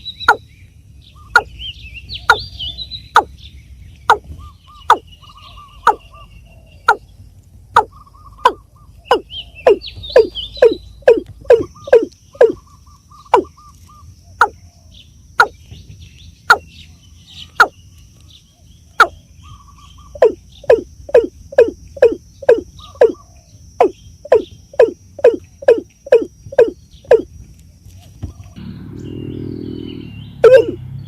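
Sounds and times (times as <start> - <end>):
high insect whine: 0.0 - 31.0
small birds twittering: 0.0 - 31.0
bird calling sharp falling notes: 30.4 - 30.8.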